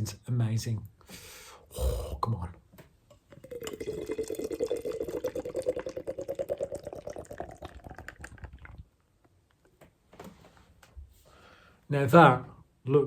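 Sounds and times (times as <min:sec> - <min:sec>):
beer glugging into glass: 0:03.1 - 0:08.9.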